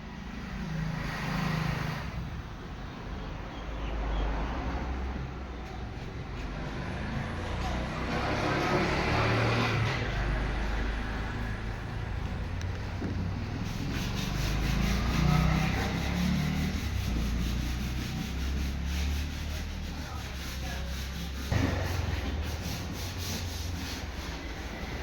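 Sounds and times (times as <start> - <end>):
wood being sanded: 13.2 - 25.0
sudden knock: 21.5 - 23.6.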